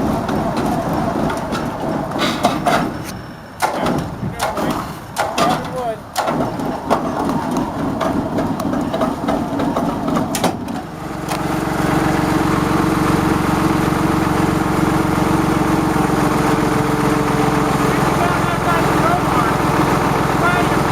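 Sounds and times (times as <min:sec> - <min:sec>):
knocks and clicks: 0:00.0 - 0:10.9
engine starting and idling: 0:00.0 - 0:20.9.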